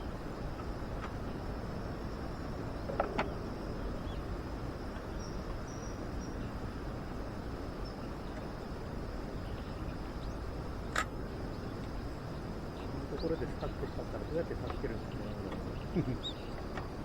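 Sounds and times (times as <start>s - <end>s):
insects chirring: 0.0s - 17.0s
outdoor background noise: 0.0s - 17.0s.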